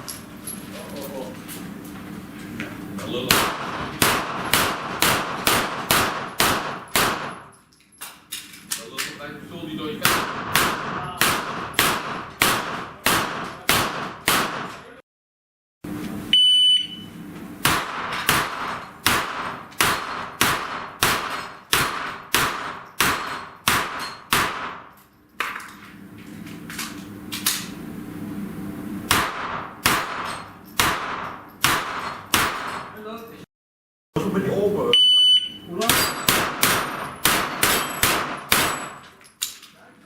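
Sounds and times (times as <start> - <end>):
rapid gunshots: 3.3 - 7.4, 10.0 - 14.8, 17.6 - 24.8, 29.1 - 32.9, 36.0 - 38.9
shot timer beep: 16.3 - 17.1, 35.0 - 35.7.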